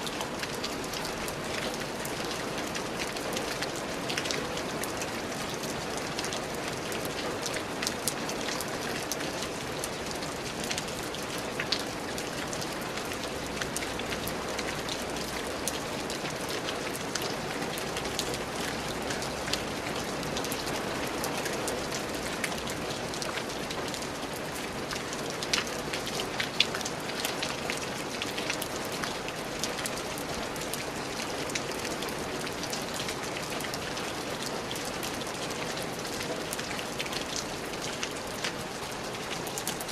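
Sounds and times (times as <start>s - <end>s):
rain pattering on hard surface: 0.0s - 39.9s.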